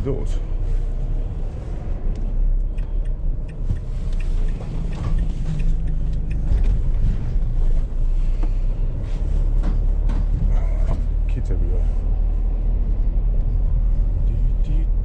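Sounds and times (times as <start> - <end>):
vehicle engine and road rumble: 0.0 - 15.0
light rattles and clicks: 2.1 - 8.6.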